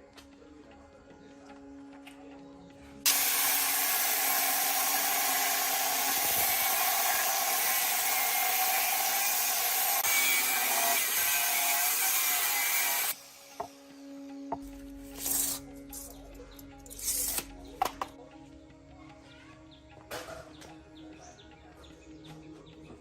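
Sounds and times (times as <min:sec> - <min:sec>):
power tool grinding: 0:03.0 - 0:16.2.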